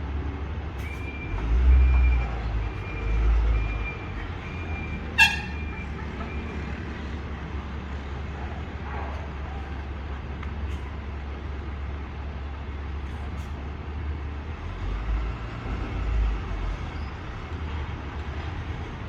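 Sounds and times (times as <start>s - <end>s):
truck engine rumble: 0.0s - 19.0s
truck reverse alarm beeping: 0.8s - 6.8s.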